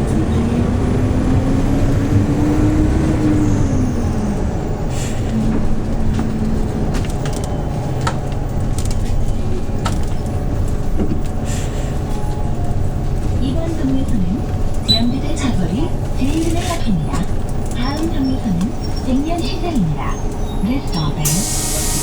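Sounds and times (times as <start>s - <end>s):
bus engine pulling under load: 0.0s - 22.0s
short air hisses: 21.3s - 22.0s.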